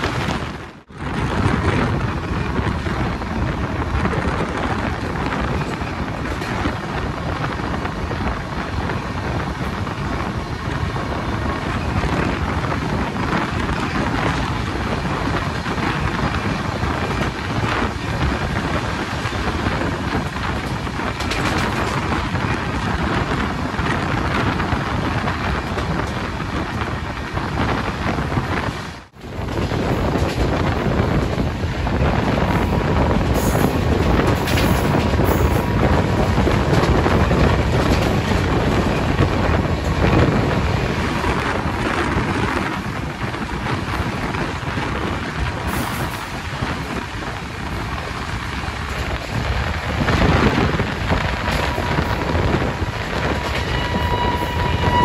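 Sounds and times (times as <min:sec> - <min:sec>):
rushing air: 0:00.0 - 0:55.0
train wheels rumbling on rails: 0:00.0 - 0:55.0
wind noise on microphone: 0:00.0 - 0:55.0.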